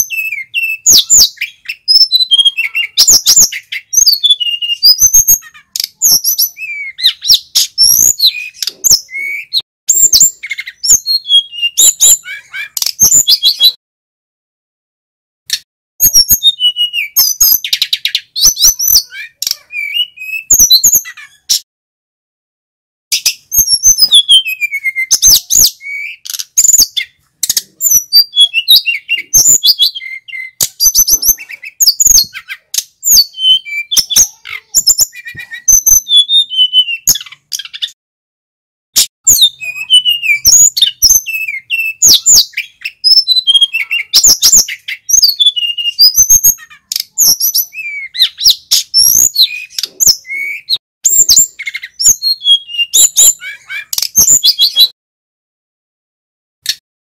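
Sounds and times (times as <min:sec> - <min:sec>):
flycatcher singing: 0:39.2 - 0:54.9.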